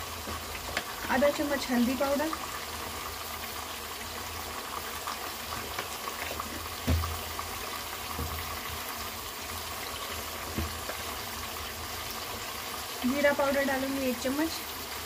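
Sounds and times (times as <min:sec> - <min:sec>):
chicken sizzling in oil: 0:00.0 - 0:15.0
dull knocks: 0:06.8 - 0:07.2.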